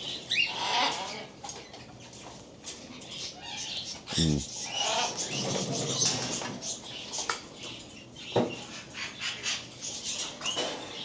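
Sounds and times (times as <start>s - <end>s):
parrots chirping and squawking: 3.2s - 6.5s.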